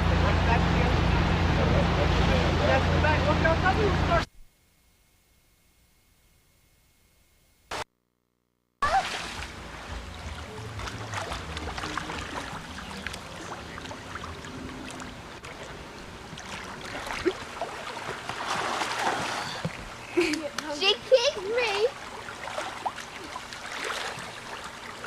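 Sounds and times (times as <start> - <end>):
boat engine rumble: 0.0 - 4.3, 8.8 - 25.0
wind and water hiss: 8.9 - 25.0.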